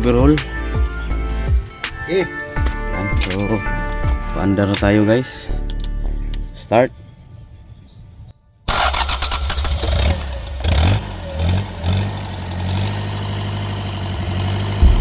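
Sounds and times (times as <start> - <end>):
diesel engine starting and idling: 8.7 - 15.0.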